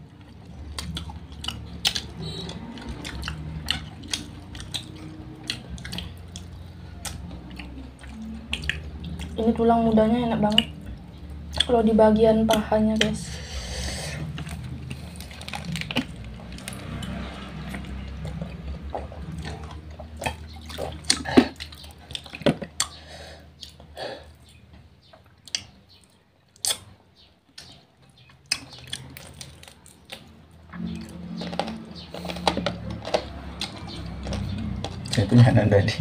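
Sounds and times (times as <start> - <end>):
wet chewing and lip-smacking: 0.0 - 9.7, 10.3 - 11.8, 14.2 - 23.0, 23.6 - 35.4
sharp mouth clicks: 19.3 - 23.0, 26.6 - 26.9.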